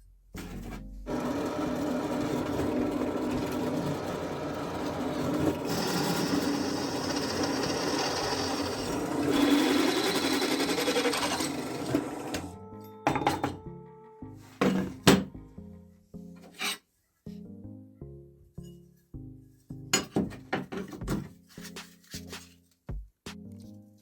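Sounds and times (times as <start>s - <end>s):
power tool running under load: 1.1s - 12.5s.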